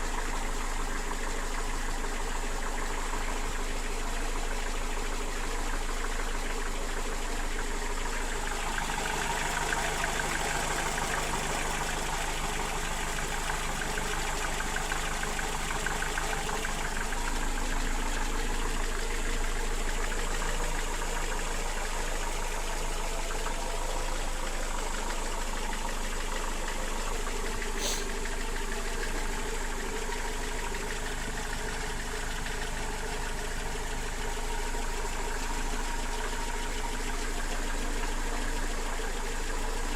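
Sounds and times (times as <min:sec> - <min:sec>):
engine knocking: 0:00.0 - 0:39.9
engine running: 0:00.0 - 0:39.9.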